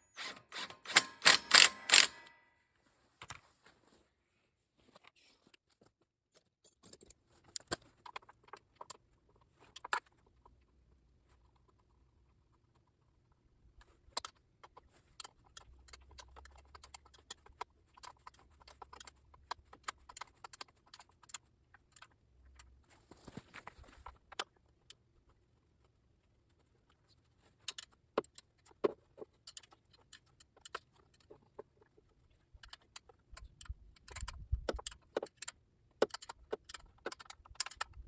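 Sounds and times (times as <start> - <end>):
hand tools and metal parts clinking: 0.0 - 2.4, 6.3 - 8.0.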